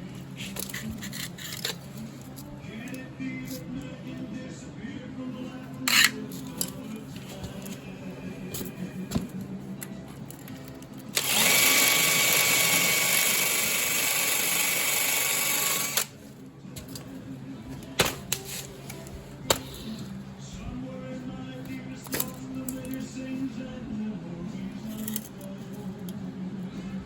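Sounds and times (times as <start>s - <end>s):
power tool whining: 11.2s - 16.2s.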